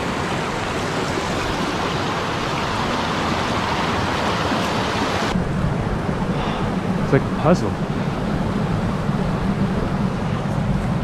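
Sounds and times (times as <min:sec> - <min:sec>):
creek water rushing over rocks: 0:00.0 - 0:05.4.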